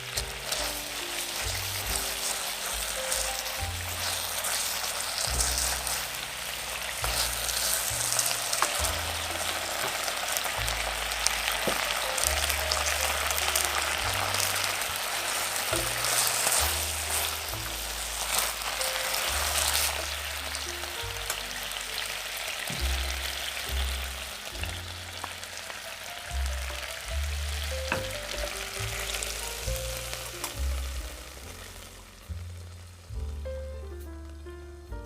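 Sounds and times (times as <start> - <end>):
steak sizzling in a frying pan: 0.0 - 34.5
background music with bass line: 0.0 - 35.0.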